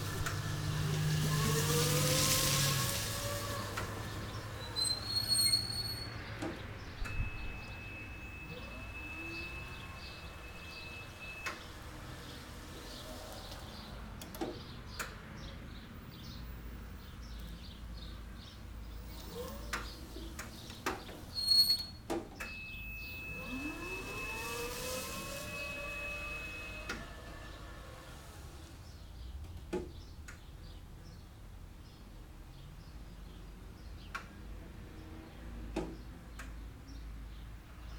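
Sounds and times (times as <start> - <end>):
electric motor whining: 0.0 - 4.5, 7.0 - 11.6, 22.6 - 28.8
steady high-pitched tone: 7.0 - 11.7, 22.5 - 27.8.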